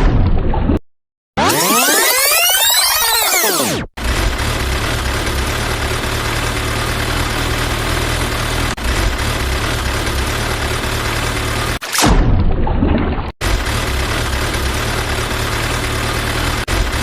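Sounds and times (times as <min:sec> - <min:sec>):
vehicle engine idling: 0:04.0 - 0:11.8, 0:13.4 - 0:17.0.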